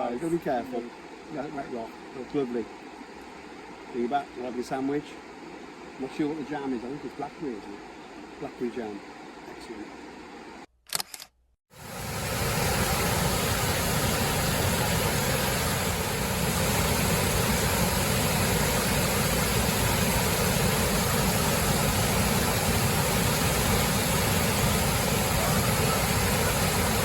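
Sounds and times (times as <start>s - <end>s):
waterfall roaring: 11.8s - 27.0s.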